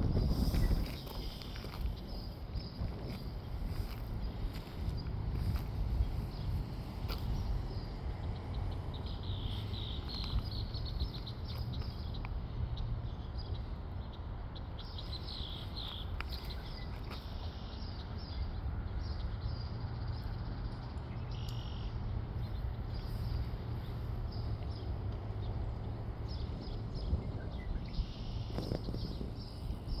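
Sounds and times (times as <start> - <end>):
small birds chirping: 0.2 - 30.0.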